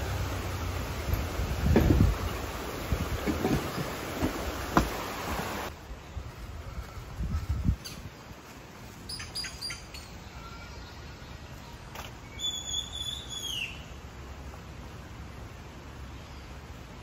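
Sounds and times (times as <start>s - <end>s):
birds chirping: 8.9s - 14.0s
whistled bird call: 12.3s - 13.9s.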